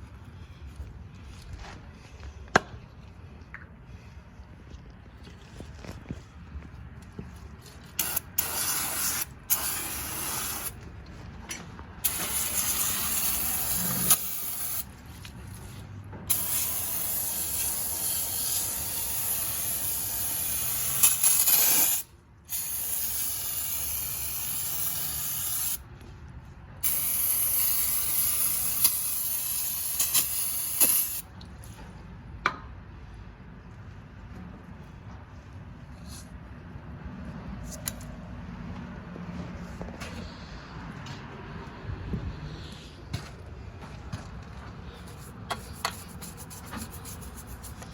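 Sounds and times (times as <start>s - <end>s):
aerosol can spraying: 8.0s - 10.8s, 12.0s - 14.9s, 16.3s - 25.8s, 26.8s - 31.2s, 45.6s - 47.9s.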